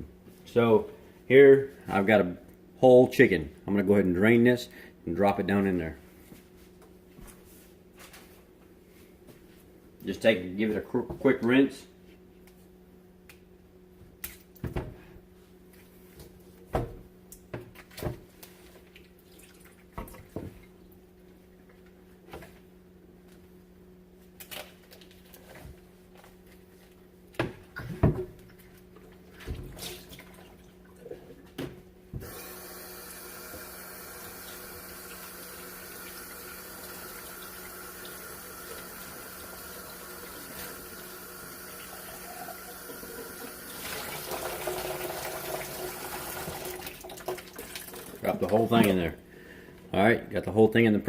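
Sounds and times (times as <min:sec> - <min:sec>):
kitchen faucet running: 0:32.2 - 0:49.0.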